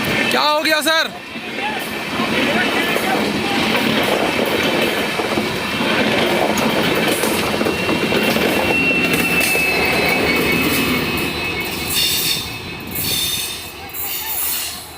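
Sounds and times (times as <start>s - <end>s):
train wheels rumbling on rails: 0.0s - 14.9s
wheel squeal on rail: 6.5s - 14.9s.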